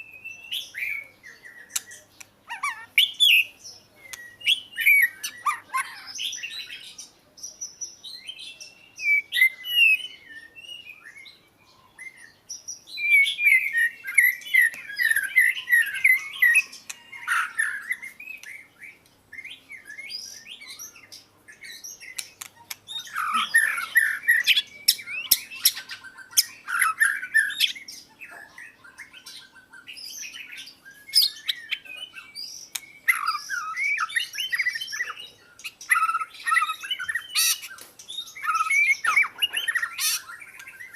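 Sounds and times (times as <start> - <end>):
bird singing whistled phrases: 0.0 - 7.1, 8.0 - 21.1, 21.7 - 40.9.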